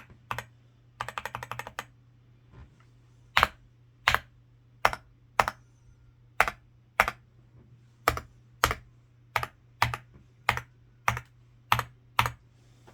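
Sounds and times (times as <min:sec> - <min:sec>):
mechanical keyboard keystrokes: 0:00.0 - 0:01.9, 0:09.4 - 0:12.4.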